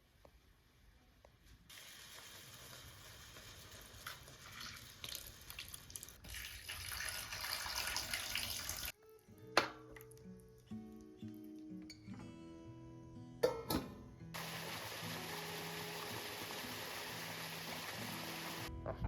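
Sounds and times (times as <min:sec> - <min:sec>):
water running in a kitchen: 0:01.4 - 0:09.0, 0:14.4 - 0:18.7.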